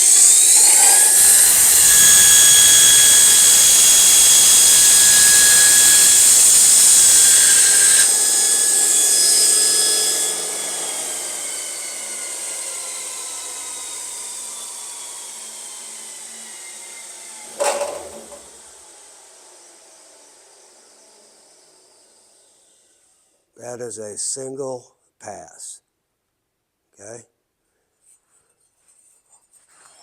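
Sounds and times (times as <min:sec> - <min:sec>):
belt grinder grinding steel blade: 0:00.0 - 0:08.2, 0:17.5 - 0:18.6.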